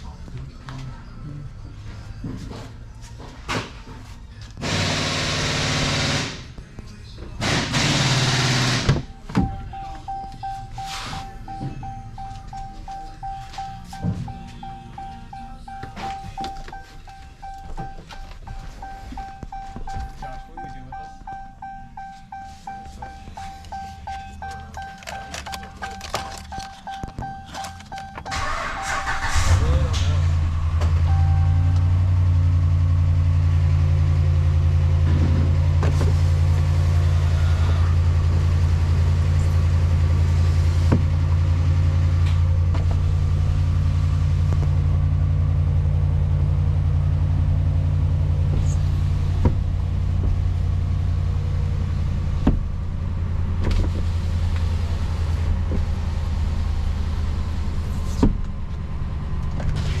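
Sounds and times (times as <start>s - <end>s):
pickup engine idling: 7.4s - 60.0s.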